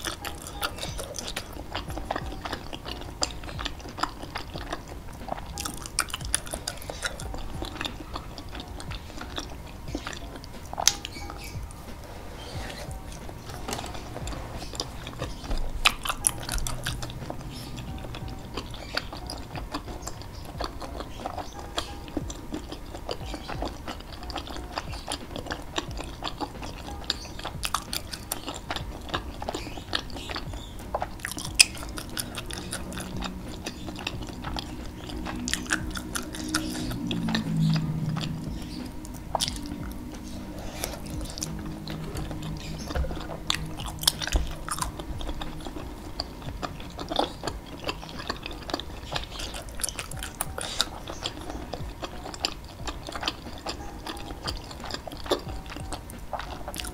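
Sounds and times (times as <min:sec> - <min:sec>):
wet chewing mouth sounds: 0:00.0 - 0:56.9
low tone sliding down: 0:32.4 - 0:49.0.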